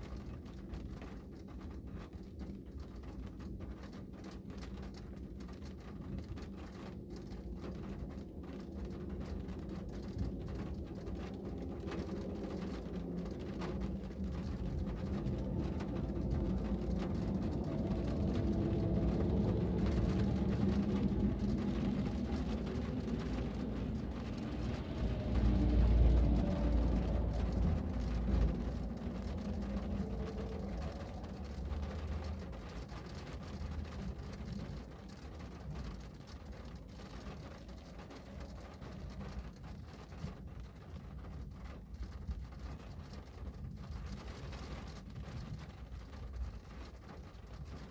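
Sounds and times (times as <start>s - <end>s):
rain pattering: 0.0s - 47.9s
passing vehicle rumble: 8.3s - 40.0s.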